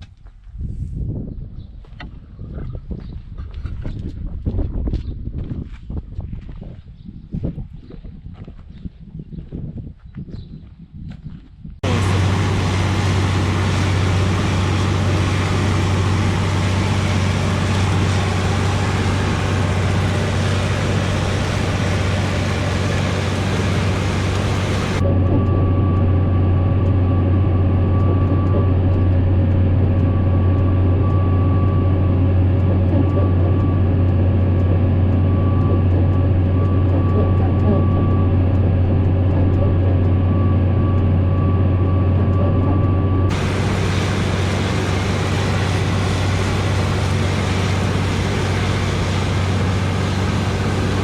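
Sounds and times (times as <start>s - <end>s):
thin steady whine: 11.8s - 51.0s
tractor engine droning: 11.8s - 51.0s.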